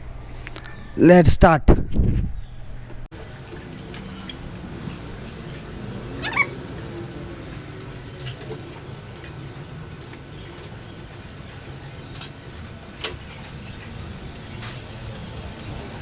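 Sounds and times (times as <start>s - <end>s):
tools and metal parts clinking: 3.4s - 5.9s, 6.8s - 16.0s.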